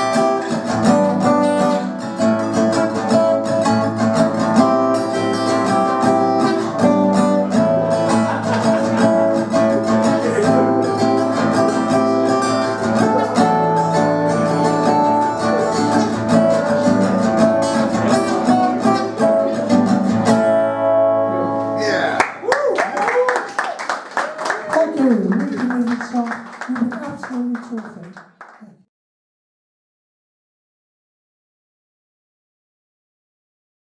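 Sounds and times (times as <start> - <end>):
acoustic guitar strumming: 0.0 - 22.2.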